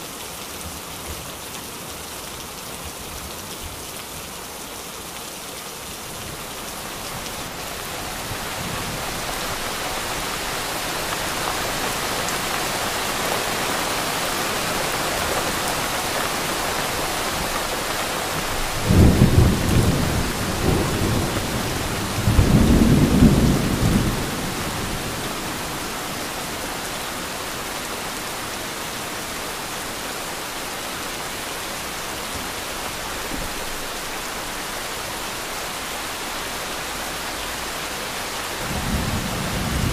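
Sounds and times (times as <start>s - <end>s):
heavy rain pouring: 0.0s - 39.9s
thunder rolling: 18.6s - 25.7s, 38.6s - 39.9s.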